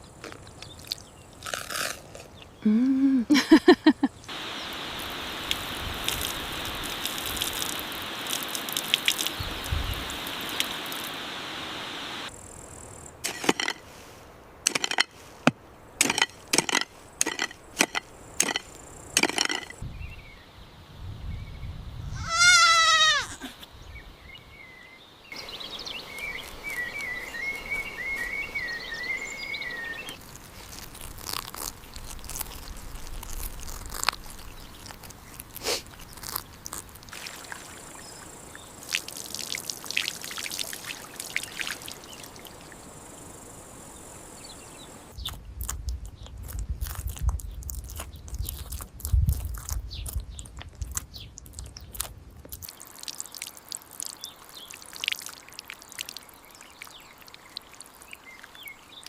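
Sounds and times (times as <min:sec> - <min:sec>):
steady outdoor hiss: 0:00.0 - 0:46.7, 0:50.3 - 0:59.0
goat bleating: 0:22.2 - 0:23.5
thin warbling call: 0:22.2 - 0:23.5.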